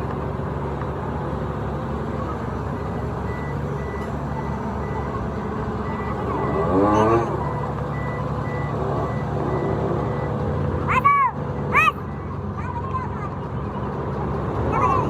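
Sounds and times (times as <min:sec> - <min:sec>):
engine running: 0:00.0 - 0:15.0
reversing alarm beeping: 0:02.8 - 0:12.5.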